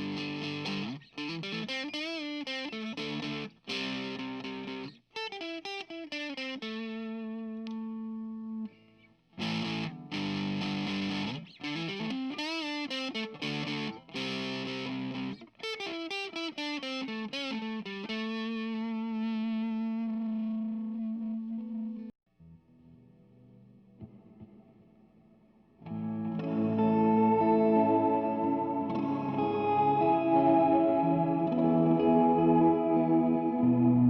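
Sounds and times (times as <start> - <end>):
distorted electric guitar: 0.0 - 34.0.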